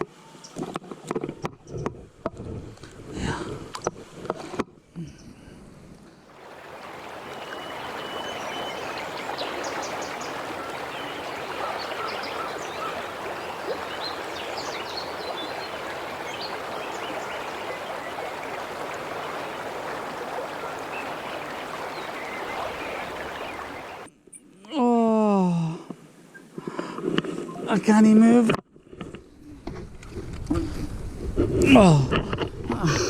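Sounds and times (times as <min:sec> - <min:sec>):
river water rushing over stones: 0:06.3 - 0:24.1.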